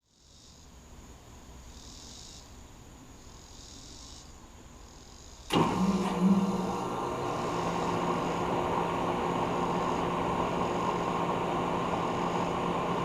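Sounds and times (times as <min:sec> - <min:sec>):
insects trilling: 0:01.6 - 0:02.6, 0:03.2 - 0:05.5
heat pump humming: 0:05.5 - 0:13.0.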